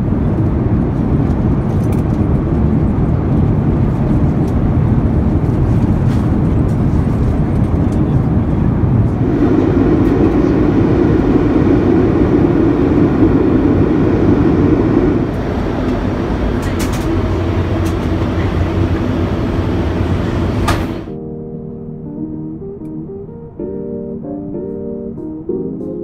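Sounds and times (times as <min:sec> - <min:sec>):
airplane cabin engine noise: 0:00.0 - 0:26.0.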